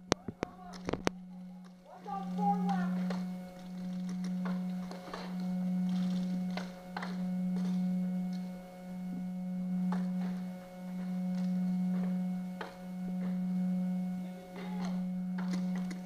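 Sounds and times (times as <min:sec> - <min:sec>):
faint sharp cracks: 0:00.0 - 0:08.8, 0:14.5 - 0:16.0
steady low hum: 0:00.0 - 0:16.0.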